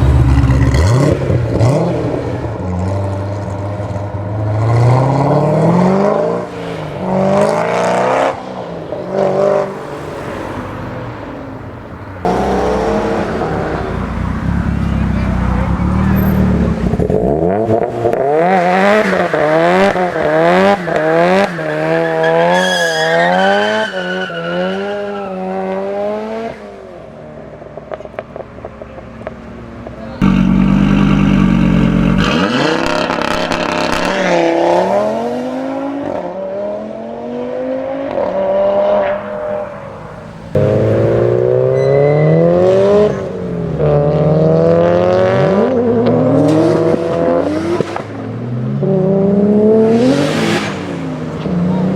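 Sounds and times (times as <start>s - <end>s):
car engines revving: 0.0s - 51.9s
exhaust crackles: 28.4s - 34.1s.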